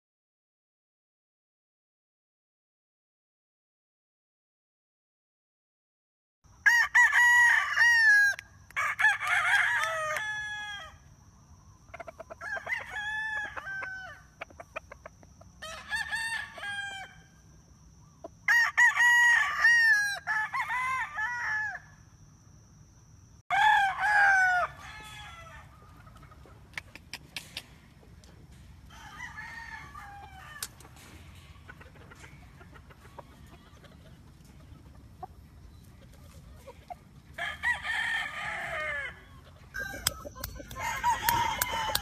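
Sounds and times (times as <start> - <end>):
roosters crowing: 6.5 - 11.2, 12.0 - 14.6, 15.5 - 17.4, 18.3 - 22.0, 23.5 - 26.6, 28.5 - 34.7, 37.0 - 42.0.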